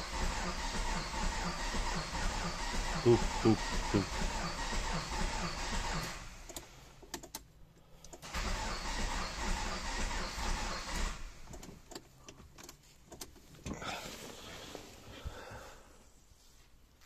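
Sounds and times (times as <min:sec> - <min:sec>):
engine knocking: 0:00.0 - 0:06.2
starter cranking diesel engine: 0:00.0 - 0:07.4, 0:08.1 - 0:12.0.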